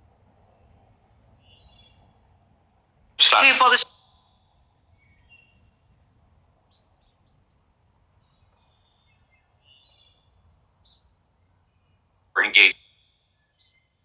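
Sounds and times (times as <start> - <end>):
faint bird chirps: 1.4 - 2.2, 8.2 - 14.0.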